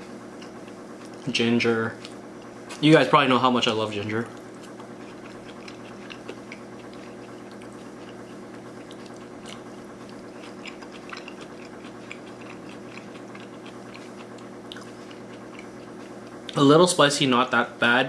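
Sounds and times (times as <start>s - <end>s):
steady background hum: 0.0s - 18.0s
crisp chewing crunches: 4.2s - 16.6s.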